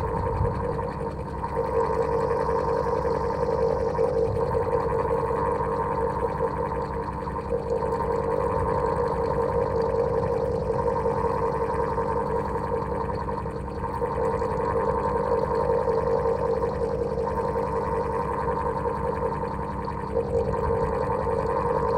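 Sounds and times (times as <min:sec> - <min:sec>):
electric fan whirring: 0:00.0 - 0:05.5.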